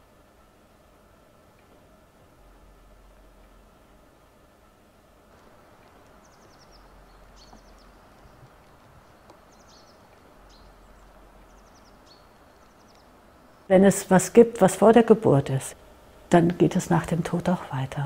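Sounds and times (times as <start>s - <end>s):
bird chirping: 5.4s - 13.7s.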